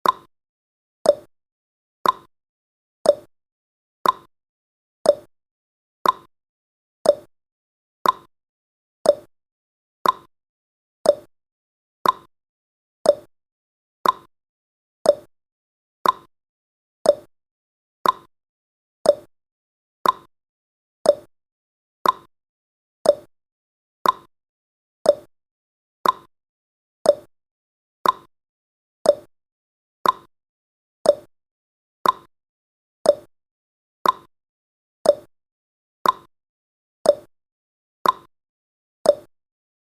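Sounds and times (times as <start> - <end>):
timer ticking: 0.0 - 0.3, 1.0 - 1.3, 2.0 - 2.3, 3.0 - 3.3, 4.0 - 4.3, 5.1 - 5.3, 6.0 - 6.3, 7.0 - 7.3, 8.0 - 8.3, 9.0 - 9.3, 10.0 - 10.3, 11.0 - 11.3, 12.0 - 12.3, 13.0 - 13.3, 14.0 - 14.3, 15.0 - 15.3, 16.0 - 16.3, 17.0 - 17.3, 18.0 - 18.3, 19.0 - 19.3, 20.0 - 20.3, 21.0 - 21.3, 22.0 - 22.3, 23.0 - 23.3, 24.0 - 24.3, 25.0 - 25.3, 26.0 - 26.3, 27.0 - 27.3, 28.0 - 28.3, 29.0 - 29.3, 30.0 - 30.3, 31.0 - 31.3, 32.0 - 32.3, 33.0 - 33.3, 34.0 - 34.3, 35.0 - 35.3, 36.0 - 36.3, 37.0 - 37.3, 38.0 - 38.3, 39.1 - 39.3.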